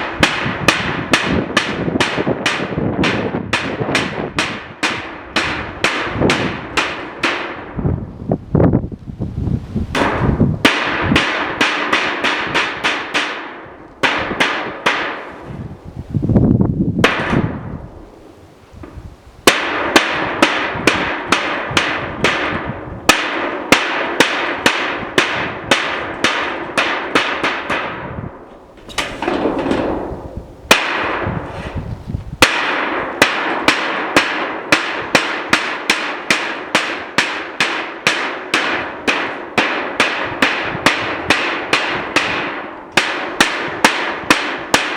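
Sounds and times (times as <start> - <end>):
hammer blows ringing: 19.5 - 31.8, 32.4 - 44.9.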